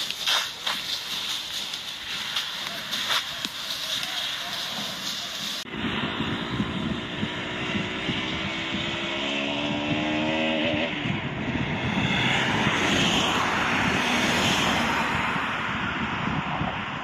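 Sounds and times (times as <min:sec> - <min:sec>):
loud steady engine rush: 0:05.6 - 0:17.0.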